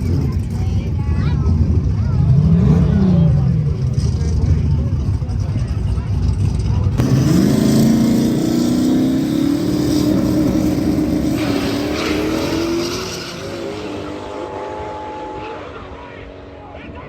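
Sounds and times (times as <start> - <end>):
race car engine accelerating: 1.4 - 17.0.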